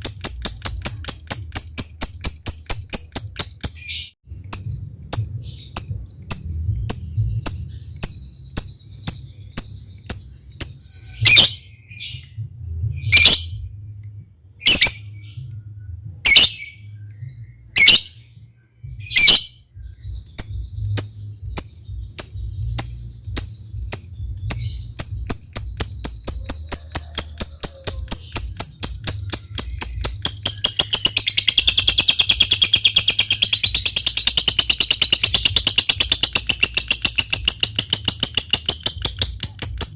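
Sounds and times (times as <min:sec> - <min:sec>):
bird chirping and trilling: 0:00.0 - 0:14.0, 0:14.6 - 0:39.9
low hum: 0:04.3 - 0:39.9.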